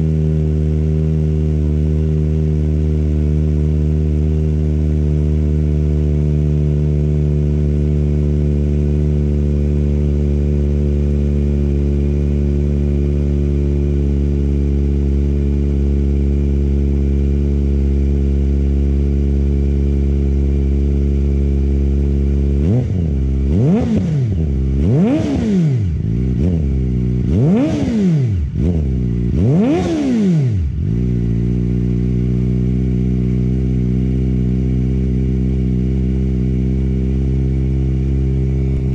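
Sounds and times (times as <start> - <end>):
motorcycle engine idling: 0.0 - 38.9
motorcycle throttle blips: 20.1 - 38.9.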